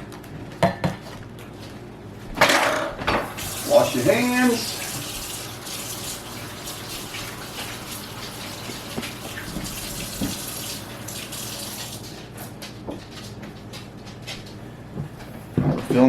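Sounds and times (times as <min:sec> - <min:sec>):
tap water splashing: 0:03.2 - 0:12.1.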